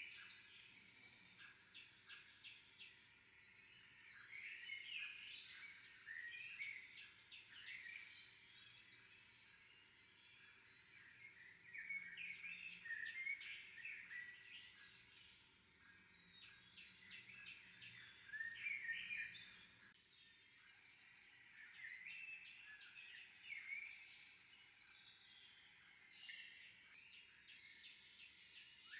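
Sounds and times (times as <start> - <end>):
songbirds singing: 0.0 - 28.9.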